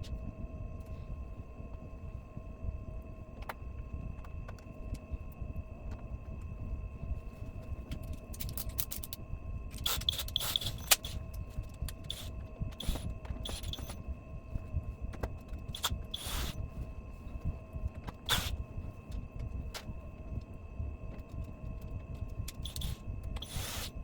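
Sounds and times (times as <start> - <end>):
faint steady whine: 0.0 - 24.0
parts and tools clicking and scraping: 7.9 - 14.0, 15.2 - 16.6, 22.5 - 24.0.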